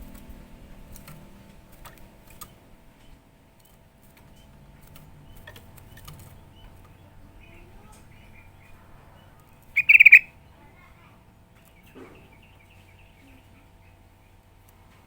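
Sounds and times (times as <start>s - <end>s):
low steady hum: 0.0s - 15.0s
short bird chirps: 9.8s - 10.3s.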